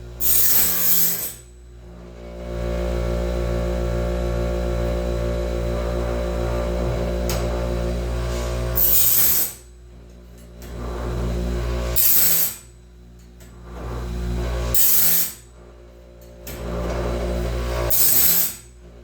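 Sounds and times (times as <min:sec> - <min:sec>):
motor hum: 0:00.0 - 0:19.0
grinding wheel hiss: 0:00.2 - 0:01.4, 0:07.0 - 0:09.6, 0:14.0 - 0:15.5, 0:17.3 - 0:18.7.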